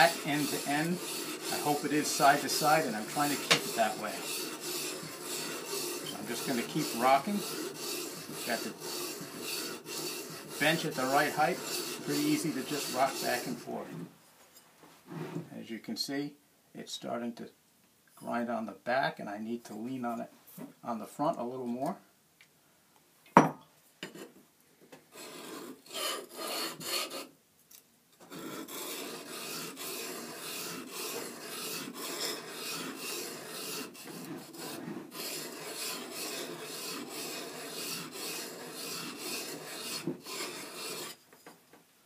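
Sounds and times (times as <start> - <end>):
plane iron rasping on sharpening stone: 0.0 - 13.7, 25.1 - 27.3, 28.3 - 41.2.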